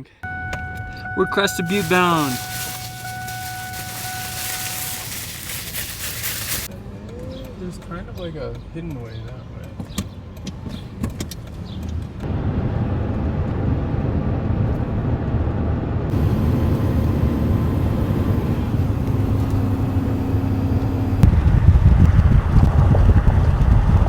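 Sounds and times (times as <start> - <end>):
engine and road noise: 0.0 - 24.0.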